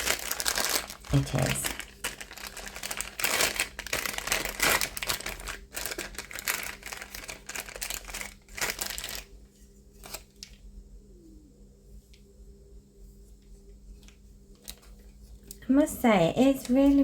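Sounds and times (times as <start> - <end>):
plastic packaging crinkling: 0.0 - 10.6, 14.0 - 15.6.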